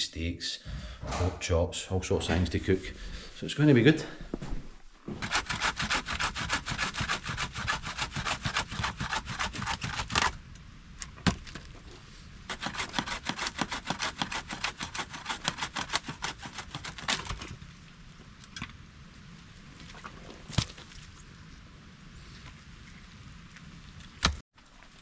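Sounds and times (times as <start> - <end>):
hand saw cutting wood: 5.2 - 10.4, 12.5 - 17.4.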